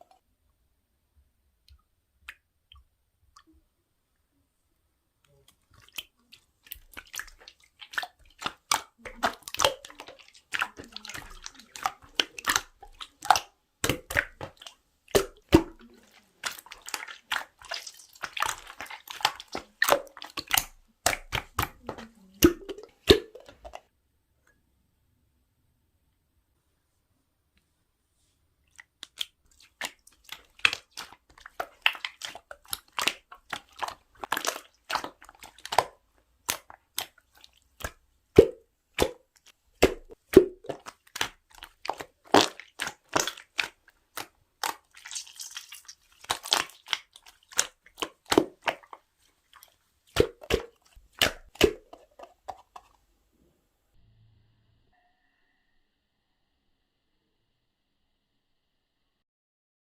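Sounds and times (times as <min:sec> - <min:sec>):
slime squished by hand: 0:05.3 - 0:23.8, 0:28.7 - 0:53.0
wet pops of air bubbles: 0:06.7 - 0:23.8, 0:28.8 - 0:49.0, 0:49.6 - 0:52.9.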